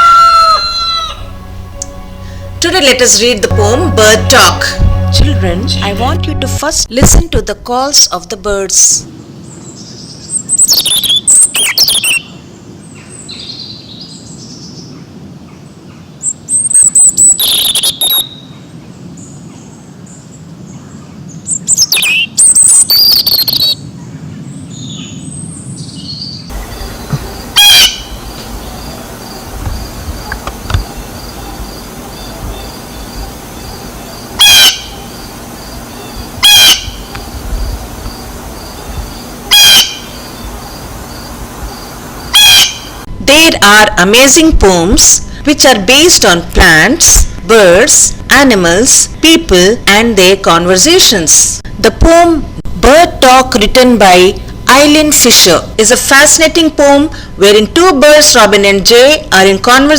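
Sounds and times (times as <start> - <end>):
background hiss: 0.0 - 6.7, 26.5 - 43.1
short sharp bird calls: 26.6 - 29.0, 30.3 - 35.2, 35.8 - 37.2, 39.5 - 40.7, 42.3 - 43.0
quickly falling bird calls: 26.6 - 37.3.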